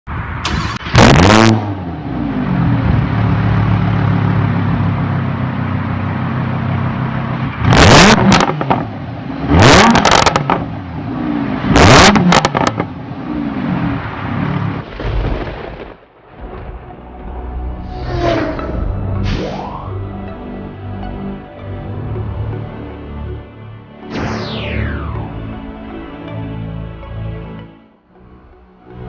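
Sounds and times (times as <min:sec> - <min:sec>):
car engine revving: 0:00.4 - 0:14.9, 0:21.9 - 0:26.6
car engine idling: 0:01.8 - 0:07.6.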